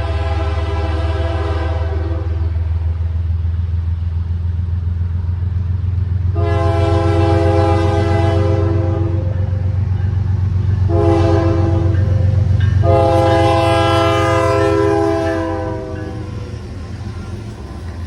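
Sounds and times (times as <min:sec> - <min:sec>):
locomotive air horn blasts: 0:00.0 - 0:02.6, 0:06.3 - 0:09.4, 0:10.9 - 0:16.5
low rumble of train: 0:00.0 - 0:18.0.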